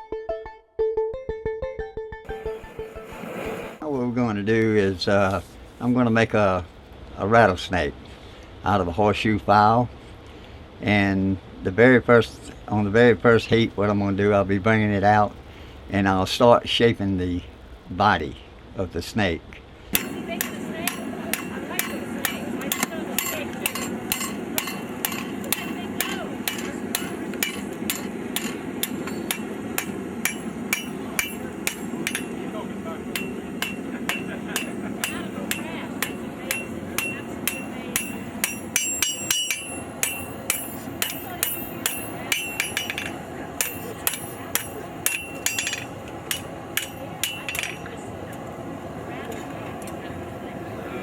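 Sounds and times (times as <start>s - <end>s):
gas forge burners rushing: 19.9s - 51.0s
hammer striking metal on anvil: 20.0s - 47.9s.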